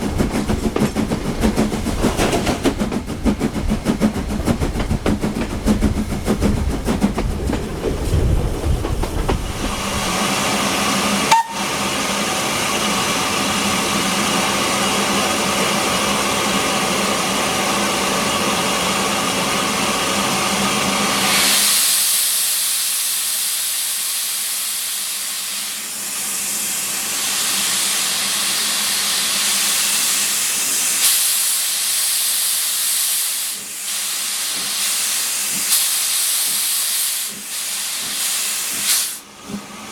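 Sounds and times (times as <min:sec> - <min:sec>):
steam locomotive running rhythm: 0:00.0 - 0:39.9
escaping steam hissing: 0:08.0 - 0:39.3
steam whistle: 0:11.2 - 0:12.0.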